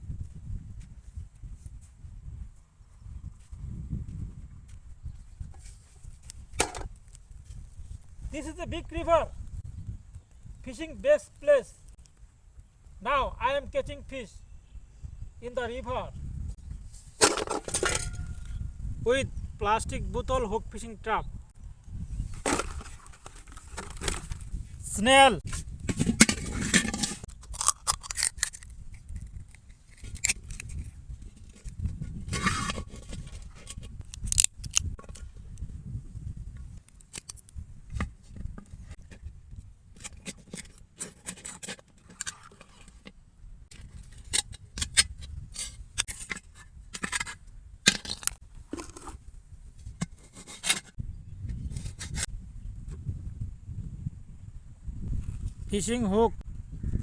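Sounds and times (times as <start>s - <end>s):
sharp clicks snips and scrapes: 26.2s - 35.6s, 36.8s - 38.1s, 43.7s - 49.2s.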